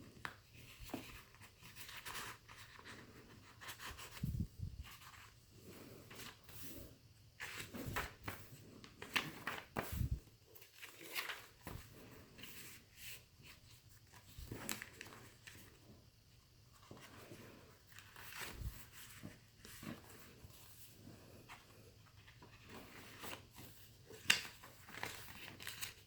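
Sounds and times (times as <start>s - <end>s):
paper pages rustling: 7.4s - 15.8s, 16.7s - 20.7s, 21.4s - 26.0s.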